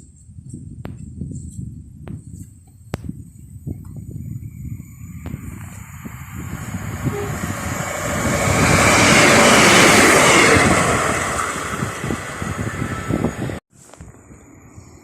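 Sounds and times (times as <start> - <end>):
train passing at speed: 5.2 - 13.6.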